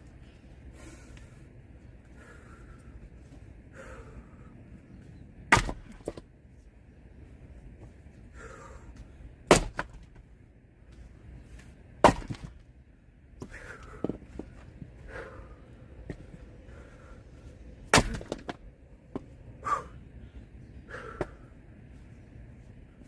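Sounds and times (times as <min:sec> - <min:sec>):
axe chopping firewood: 0:05.5 - 0:06.2, 0:09.4 - 0:10.2, 0:12.0 - 0:12.6, 0:17.9 - 0:18.6.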